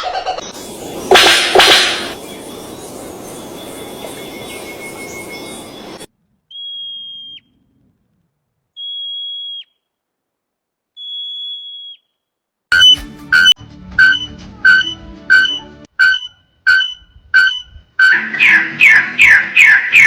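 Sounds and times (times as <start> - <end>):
outdoor ambience: 0.0 - 20.0
bird whistled call: 0.8 - 7.5, 8.8 - 9.8, 11.0 - 12.1, 12.8 - 20.0.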